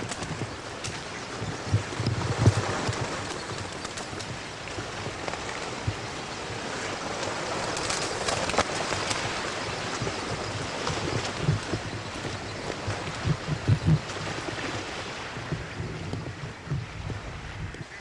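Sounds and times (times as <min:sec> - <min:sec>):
water splashing: 0:00.0 - 0:17.5
bird calls: 0:00.0 - 0:18.0.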